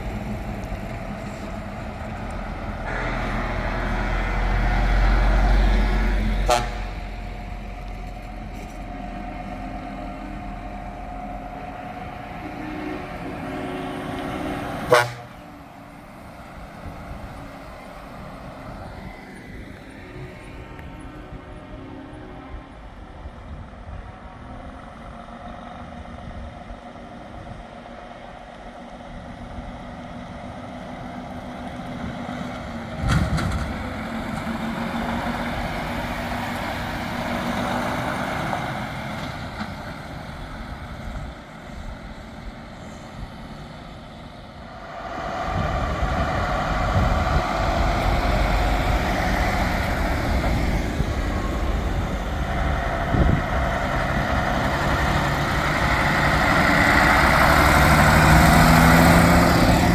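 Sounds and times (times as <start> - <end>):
heavy truck engines driving past: 0.0 - 59.9.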